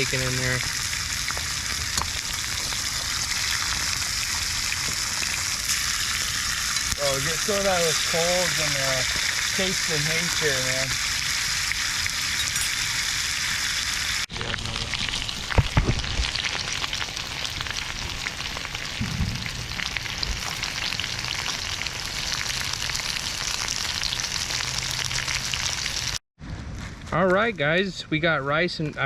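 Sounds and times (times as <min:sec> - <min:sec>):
meat frying in oil: 0:00.0 - 0:26.2
low knocks: 0:19.0 - 0:19.7.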